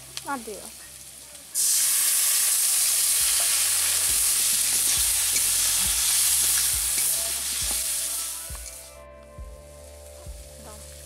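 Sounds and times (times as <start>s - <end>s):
spice paste sizzling in hot oil: 0.0s - 8.9s
metal spatula scraping a wok: 3.6s - 8.8s.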